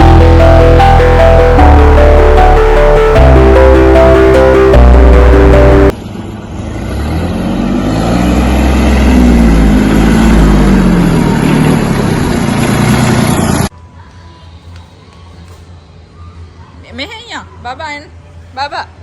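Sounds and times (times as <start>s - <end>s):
old tractor engine revving: 6.5s - 13.7s.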